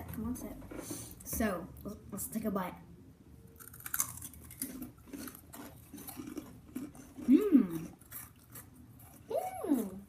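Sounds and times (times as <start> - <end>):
crunchy snack being chewed: 3.6 - 10.0.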